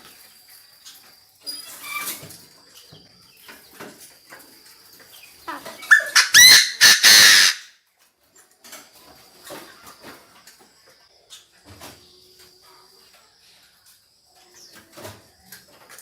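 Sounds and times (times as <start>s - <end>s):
francolin calling: 5.1s - 7.7s.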